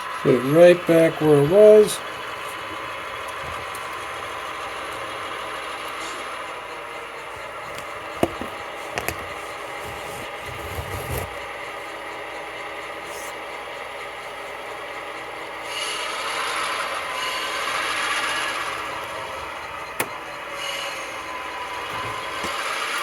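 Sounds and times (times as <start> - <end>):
model diesel engine running: 0.0 - 23.0
sharp clicks and knocks: 7.7 - 9.3.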